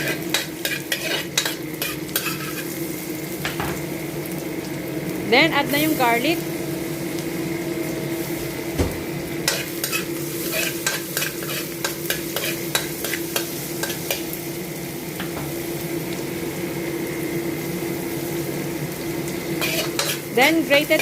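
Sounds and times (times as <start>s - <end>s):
utensil scraping a wok: 0.0s - 2.8s, 9.4s - 14.3s, 19.5s - 21.0s
garlic and ginger sizzling in oil: 0.0s - 21.0s.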